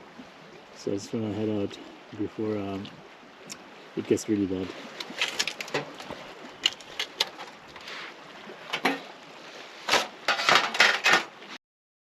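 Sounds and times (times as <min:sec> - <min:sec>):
camping gear clattering: 0:04.8 - 0:09.1, 0:09.8 - 0:11.4
camping gear knocking and clinking: 0:04.9 - 0:07.9, 0:08.6 - 0:09.1, 0:09.9 - 0:11.4.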